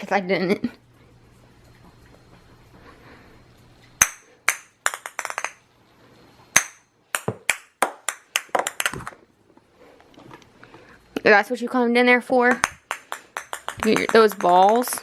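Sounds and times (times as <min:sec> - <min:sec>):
plastic toys knocking together: 0:04.0 - 0:05.6, 0:06.6 - 0:09.2, 0:12.5 - 0:15.0.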